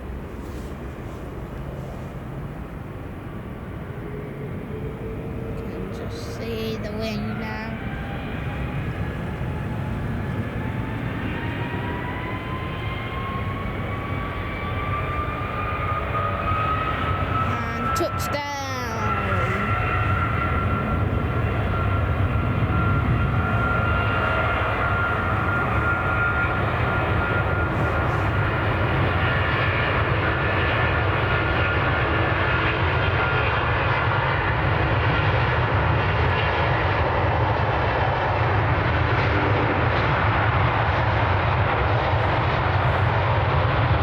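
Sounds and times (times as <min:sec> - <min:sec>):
jet airliner engines running: 0:00.0 - 0:44.0
wind buffeting microphone: 0:00.0 - 0:44.0
thin engine whine: 0:03.9 - 0:33.8.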